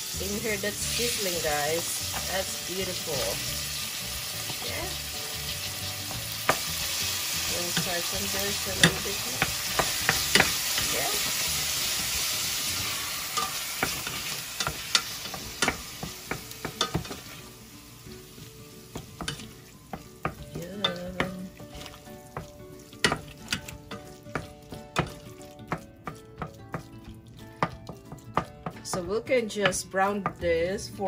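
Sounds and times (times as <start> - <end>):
meat sizzling in a saucepan: 0.0 - 31.0
wooden spoon knocking and scraping pan: 5.6 - 17.4, 18.9 - 30.6.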